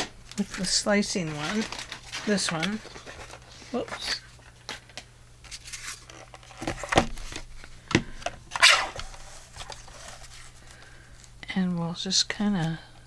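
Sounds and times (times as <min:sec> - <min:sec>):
paper rustling: 0:00.0 - 0:07.8, 0:08.5 - 0:11.0.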